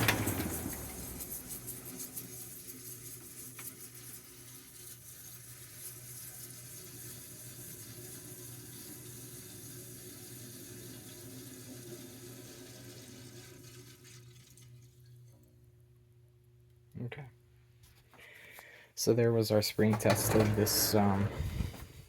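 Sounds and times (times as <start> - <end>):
dehumidifier low hum: 0.0 - 2.2, 19.8 - 22.0
dehumidifier trickling hiss: 0.0 - 15.1.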